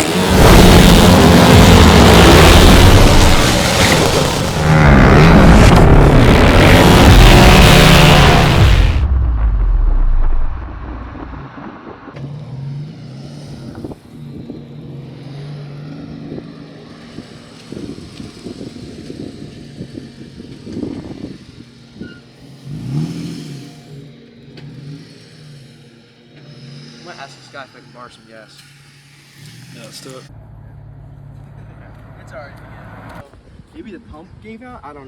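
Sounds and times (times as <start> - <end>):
loud rush of noise: 0.0 - 12.5
engine running: 0.0 - 33.2.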